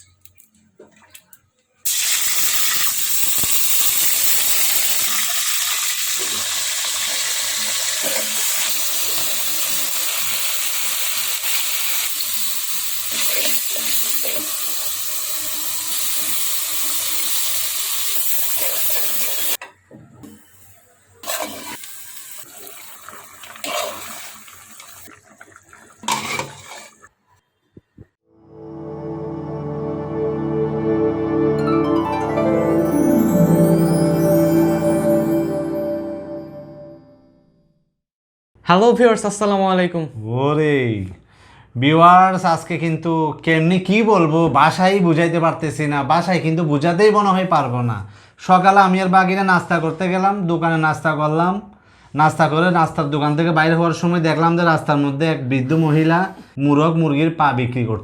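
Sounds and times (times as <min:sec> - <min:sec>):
tap water running into sink: 0:21.8 - 0:27.0.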